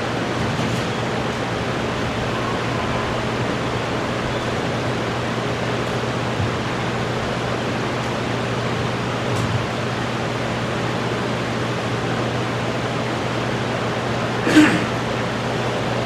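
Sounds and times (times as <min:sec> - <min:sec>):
low hum: 0:01.2 - 0:07.6.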